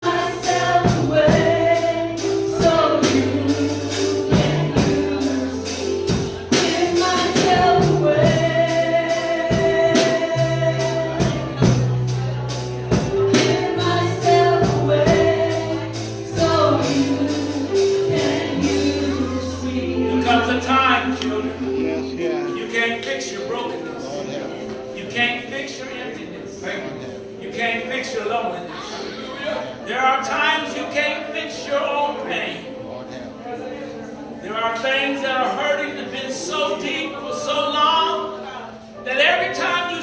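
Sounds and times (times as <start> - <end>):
voices singing: 0.0 - 12.1, 13.2 - 22.9
held bass notes: 0.0 - 23.0
steady percussion beat: 0.4 - 20.4.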